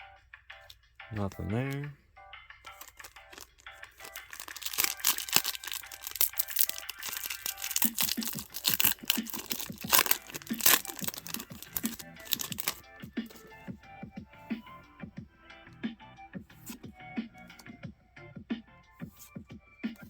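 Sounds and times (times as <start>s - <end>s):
quiet background music: 0.0s - 20.0s
foil wrapper crinkling and tearing: 2.7s - 13.4s.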